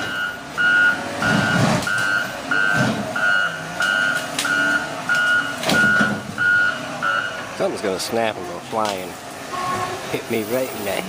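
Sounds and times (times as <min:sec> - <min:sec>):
truck reversing alarm beeping: 0:00.0 - 0:07.7
truck engine running: 0:00.0 - 0:11.0.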